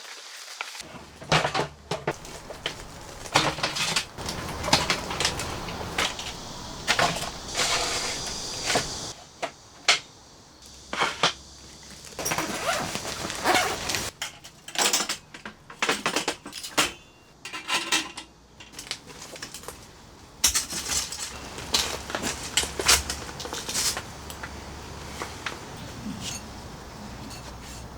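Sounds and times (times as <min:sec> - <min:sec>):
objects clinking and knocking: 0:01.2 - 0:09.1.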